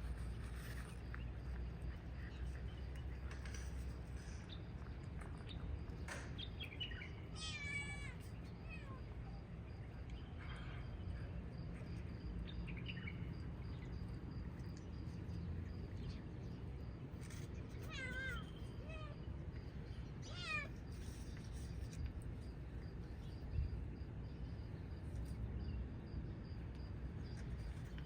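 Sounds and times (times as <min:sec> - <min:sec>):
cats meowing: 0:07.4 - 0:09.0, 0:17.8 - 0:19.2, 0:20.2 - 0:20.7.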